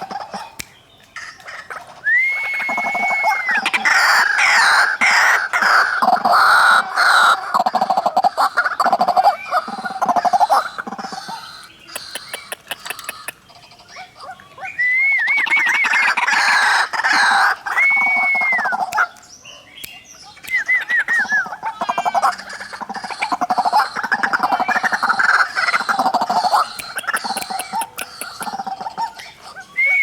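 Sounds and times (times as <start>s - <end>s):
waterhens calling: 0.0s - 19.2s, 20.3s - 30.0s
looping whistled calls: 0.0s - 30.0s.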